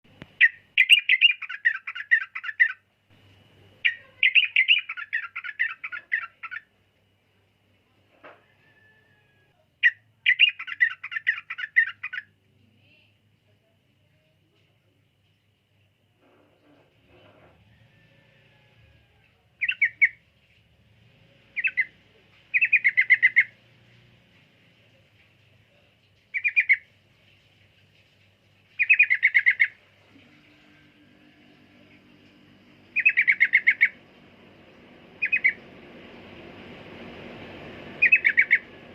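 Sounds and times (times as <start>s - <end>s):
bulbul chattering song: 0.1s - 2.9s, 3.8s - 6.8s, 9.8s - 12.4s, 19.6s - 20.6s, 21.5s - 23.6s, 25.8s - 27.0s, 28.7s - 29.8s, 32.8s - 38.9s
bird chirping: 0.2s - 2.8s, 3.8s - 6.7s, 9.8s - 12.4s, 19.6s - 20.6s, 21.6s - 23.6s, 25.7s - 27.0s, 28.8s - 29.8s, 32.9s - 34.0s, 35.1s - 35.6s, 37.9s - 38.8s.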